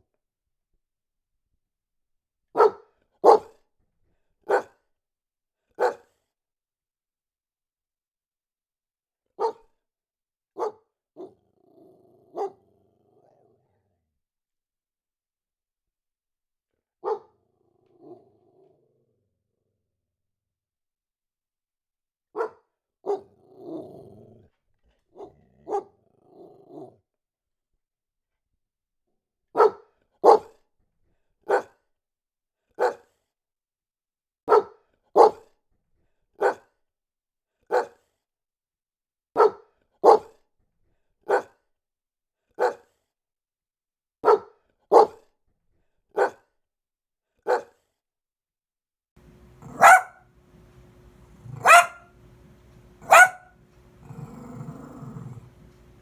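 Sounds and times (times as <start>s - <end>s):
dog barking: 2.6s - 3.6s, 4.5s - 4.8s, 5.8s - 6.1s, 9.4s - 9.6s, 10.6s - 11.3s, 12.4s - 12.6s, 17.0s - 17.3s, 22.4s - 23.3s, 25.2s - 25.9s, 29.6s - 30.5s, 31.5s - 31.7s, 32.8s - 33.0s, 34.5s - 35.4s, 36.4s - 36.6s, 37.7s - 38.0s, 39.4s - 40.3s, 41.3s - 41.5s, 42.6s - 42.8s, 44.2s - 45.2s, 46.2s - 46.4s, 47.5s - 47.7s, 49.2s - 56.0s
dog growling: 11.2s - 13.7s, 23.4s - 24.5s, 25.2s - 27.0s, 49.2s - 56.0s
steady low hum: 49.2s - 56.0s.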